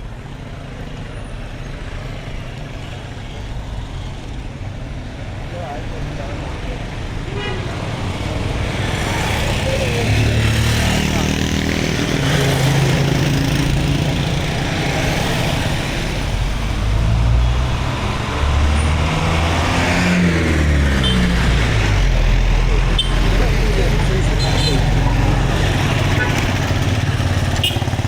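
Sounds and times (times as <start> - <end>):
street traffic: 0.0 - 28.0
vehicle engine running: 21.7 - 28.0.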